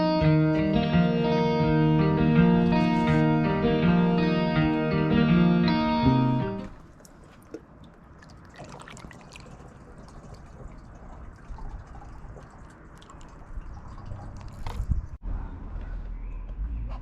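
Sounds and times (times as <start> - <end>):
water trickling: 6.7 - 14.9
small water drips: 6.8 - 14.9.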